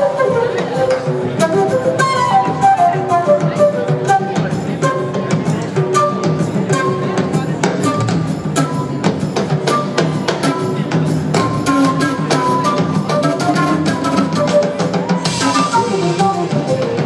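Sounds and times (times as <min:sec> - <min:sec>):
blues-rock band playing: 0:00.0 - 0:17.0
drums and hand percussion: 0:00.0 - 0:17.0.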